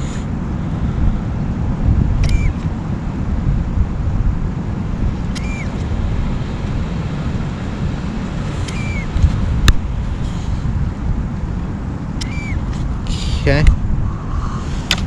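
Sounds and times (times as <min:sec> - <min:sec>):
wind buffeting microphone: 0:00.0 - 0:15.0
sharp click: 0:02.2 - 0:02.7, 0:05.3 - 0:05.9, 0:08.6 - 0:09.8, 0:12.2 - 0:12.8
short chirps: 0:05.4 - 0:05.7, 0:12.2 - 0:12.6.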